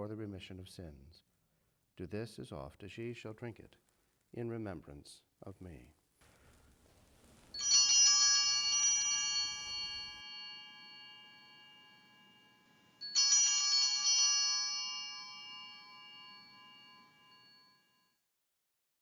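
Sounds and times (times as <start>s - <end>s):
altar bell ringing: 7.6s - 18.1s.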